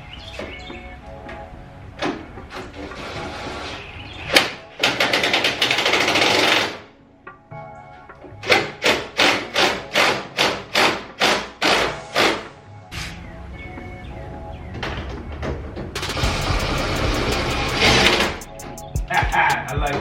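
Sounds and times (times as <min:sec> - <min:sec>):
music beat: 0:16.0 - 0:20.0.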